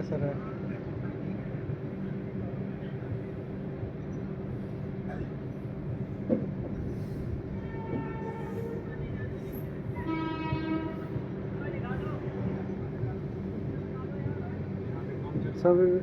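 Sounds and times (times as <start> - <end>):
train running noise: 0.0 - 16.0
train horn: 7.5 - 11.2.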